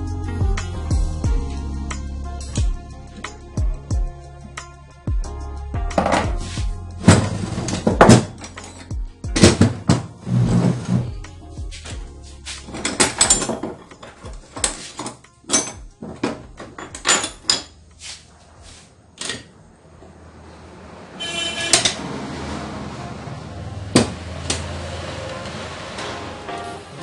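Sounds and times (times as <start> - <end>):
metallic clicks and knocks: 12.6 - 17.8.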